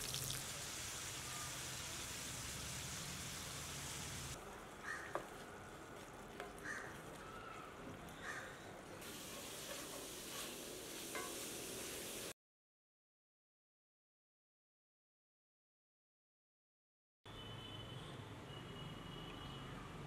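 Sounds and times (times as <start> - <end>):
meat sizzling in a pan: 0.0 - 4.4, 9.0 - 12.3
wooden spatula stirring in pan: 4.5 - 12.1.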